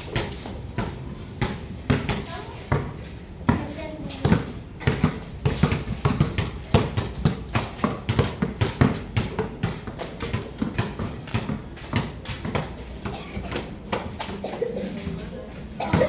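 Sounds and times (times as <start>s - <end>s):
basketballs bouncing on hard court: 0.0s - 14.4s.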